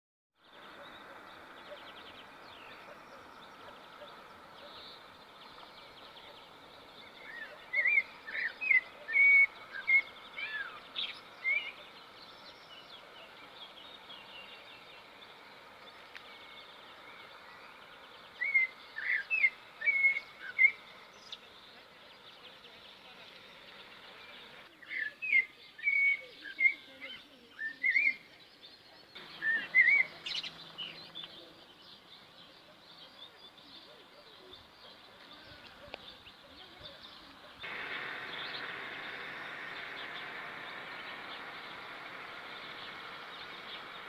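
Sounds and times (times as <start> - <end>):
faint distant chirping: 0.4 - 44.0
songbird whistled notes: 7.0 - 11.9, 29.2 - 31.4.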